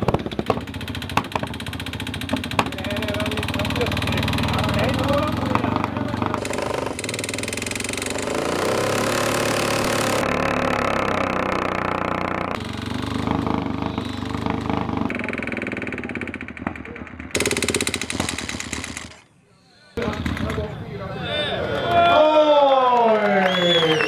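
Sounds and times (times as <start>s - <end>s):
motorcycle engines revving high: 0.0s - 19.2s.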